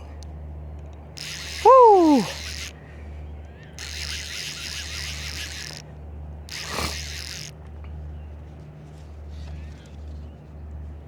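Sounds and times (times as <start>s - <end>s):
fly reel clicking rasp: 1.1s - 2.9s, 3.6s - 7.6s.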